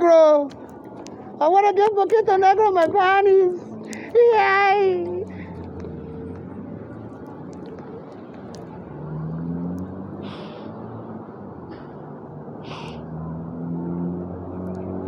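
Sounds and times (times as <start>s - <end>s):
vehicle engine and road rumble: 0.0s - 15.0s
short hisses: 10.2s - 10.8s, 12.6s - 13.0s.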